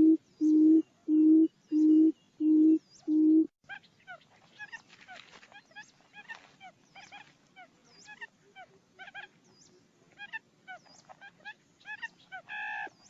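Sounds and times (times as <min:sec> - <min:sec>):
quail calls chirping: 0:00.0 - 0:09.4, 0:10.1 - 0:13.0.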